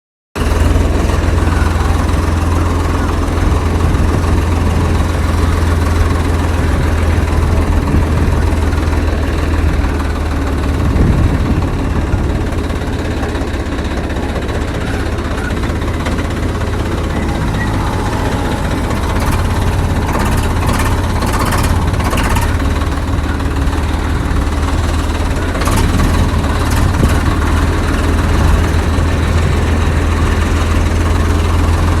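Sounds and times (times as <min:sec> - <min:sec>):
tractor diesel engine drone: 0:00.4 - 0:32.0
short clicks and rattles: 0:18.9 - 0:23.2.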